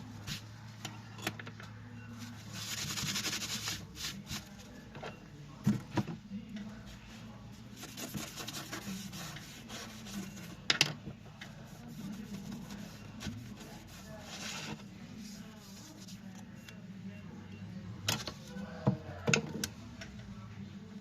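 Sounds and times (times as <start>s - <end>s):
hand rubbing and scraping object: 7.8s - 10.6s.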